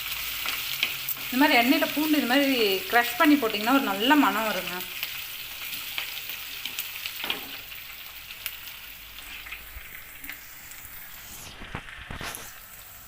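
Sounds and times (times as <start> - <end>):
food sizzling in hot oil: 0.0 - 13.0
light crackles: 8.3 - 13.0.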